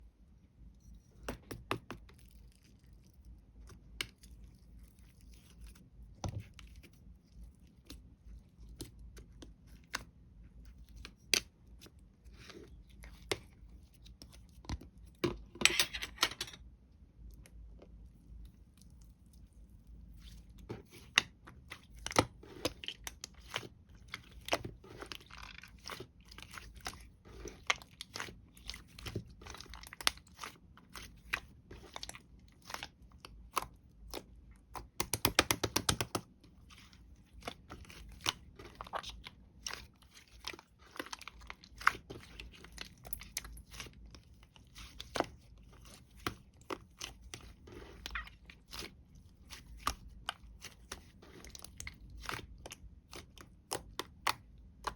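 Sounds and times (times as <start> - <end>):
close-up crunching and crackling: 16.9 - 54.9.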